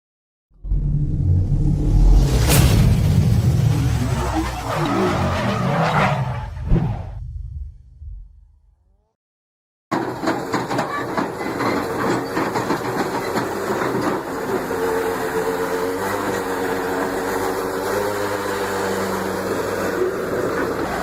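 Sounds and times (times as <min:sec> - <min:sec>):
bulldozer diesel engine running: 0:09.9 - 0:21.0.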